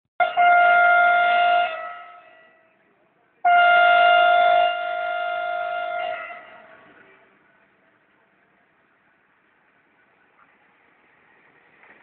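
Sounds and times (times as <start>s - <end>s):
train horn blasts: 0.2s - 2.7s, 3.4s - 6.7s.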